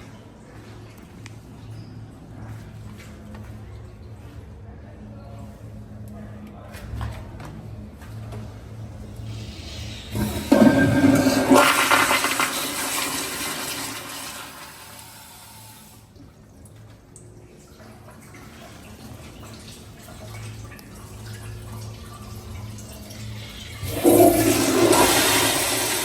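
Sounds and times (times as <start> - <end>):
toilet flushing: 9.1 - 16.3, 17.5 - 26.0.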